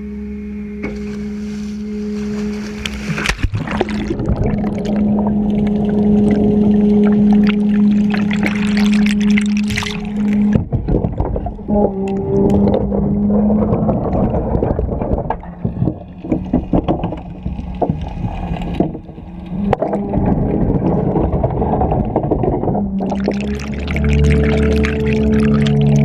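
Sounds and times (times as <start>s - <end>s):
muffled machine hum: 0.0s - 26.0s
churning water: 0.8s - 26.0s
knocks and clicks: 8.2s - 24.9s.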